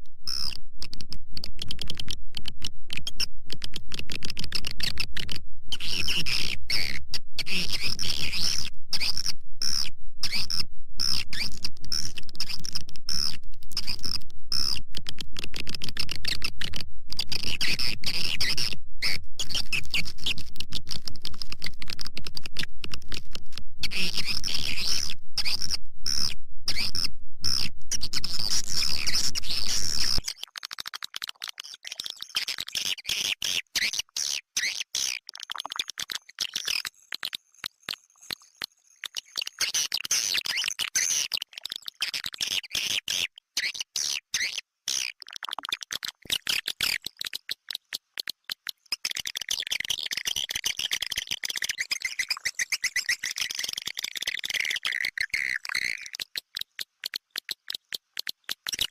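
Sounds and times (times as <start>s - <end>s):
steady low hum: 5.0s - 15.0s, 16.5s - 30.2s.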